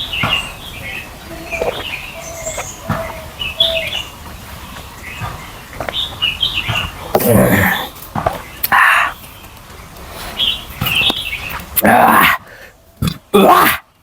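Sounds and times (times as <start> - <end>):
wet chewing: 1.4 - 3.2
lip-smacking and mouth clicks: 1.5 - 2.8, 8.6 - 9.2.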